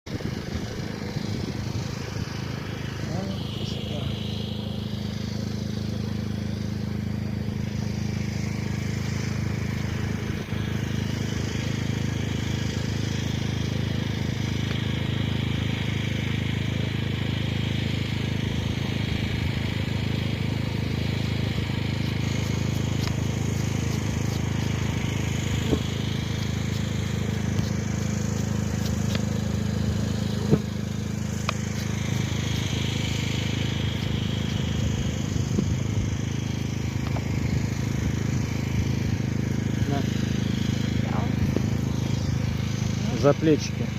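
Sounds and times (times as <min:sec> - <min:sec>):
honeybees buzzing: 0:18.4 - 0:43.9.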